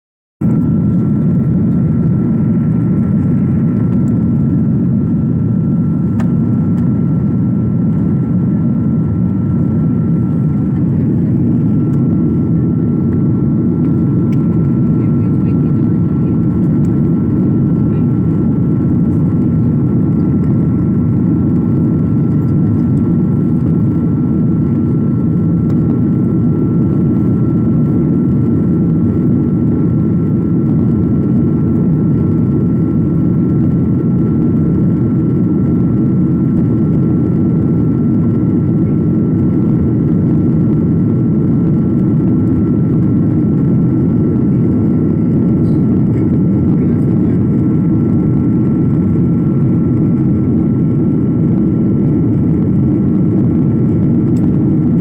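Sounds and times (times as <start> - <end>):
airliner engine drone: 0.4 - 55.0
thin steady whine: 0.4 - 55.0.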